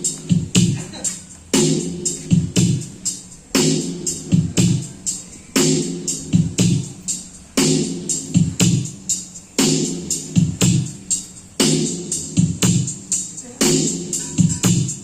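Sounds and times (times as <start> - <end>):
electronic dance music: 0.0 - 15.0.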